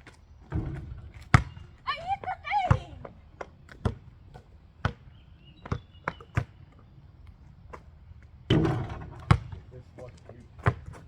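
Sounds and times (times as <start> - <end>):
basketball bouncing on hard court: 0.5 - 1.8, 2.7 - 4.1, 4.8 - 5.0, 8.5 - 9.6, 10.6 - 11.0.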